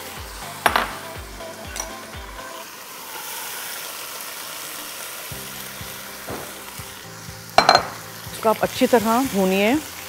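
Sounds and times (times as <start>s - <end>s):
background music: 0.0s - 3.0s, 5.0s - 10.0s
masala sizzling in a wok: 0.0s - 10.0s.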